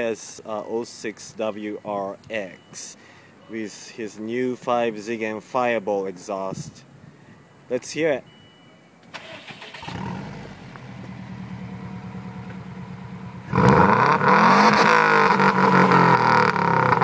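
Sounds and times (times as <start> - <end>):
car engine idling and revving: 9.3 - 17.0.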